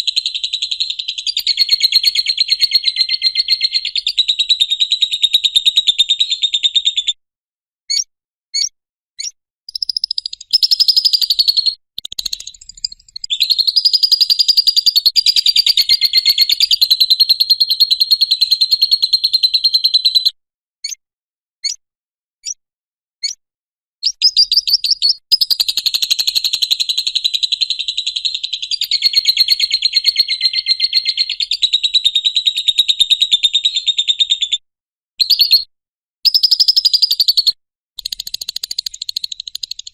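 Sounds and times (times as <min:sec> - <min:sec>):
short bird chirps: 0:07.9 - 0:18.0, 0:24.0 - 0:26.6, 0:36.3 - 0:39.9.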